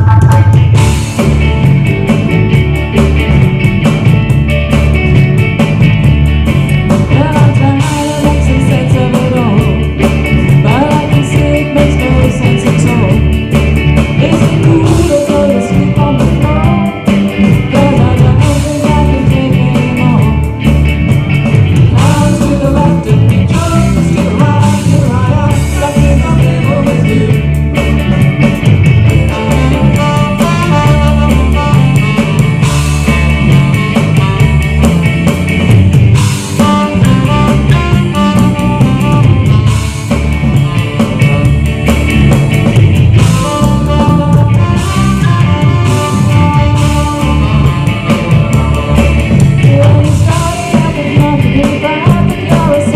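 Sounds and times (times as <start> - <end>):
person singing: 0.0 - 0.8, 6.9 - 20.6, 21.8 - 27.6, 29.3 - 32.2, 43.2 - 52.9
bass: 0.0 - 52.9
drums: 0.0 - 52.9
guitar: 0.0 - 52.9.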